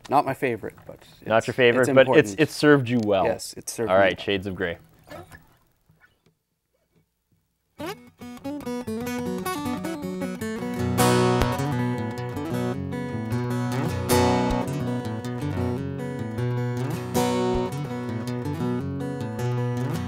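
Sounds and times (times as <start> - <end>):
acoustic guitar playing: 7.8 - 20.0.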